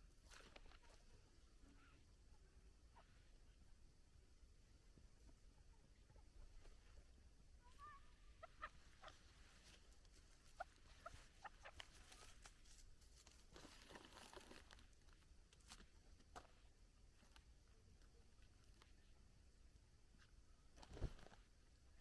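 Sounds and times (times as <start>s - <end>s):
partridge chirping: 5.5s - 13.0s.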